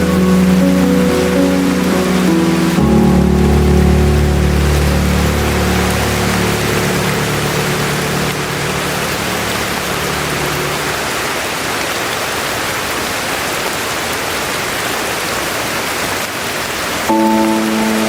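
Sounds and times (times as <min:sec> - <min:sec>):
soft melody: 0:00.0 - 0:11.0, 0:17.1 - 0:18.0
steady rain hiss: 0:00.0 - 0:18.0.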